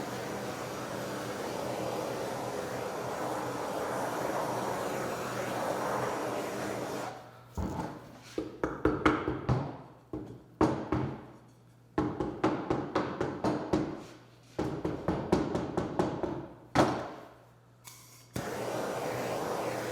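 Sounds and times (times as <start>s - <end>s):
heat torch hissing: 0.0s - 7.3s, 18.3s - 19.9s.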